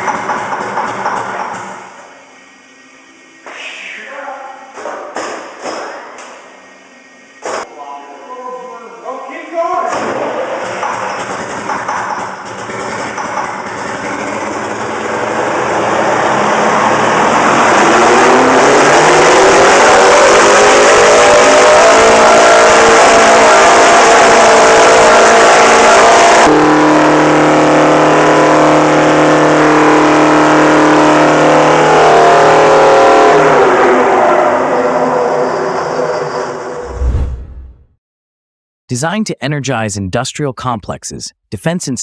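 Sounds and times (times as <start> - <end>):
diesel engine screaming at high revs: 13.7 - 36.2.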